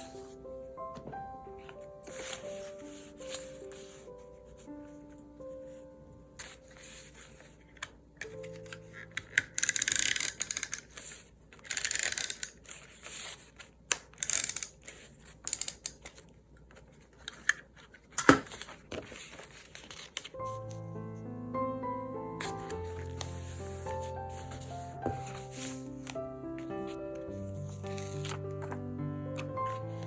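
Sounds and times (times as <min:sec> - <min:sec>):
faint background music: 0:00.0 - 0:10.9, 0:19.1 - 0:30.0.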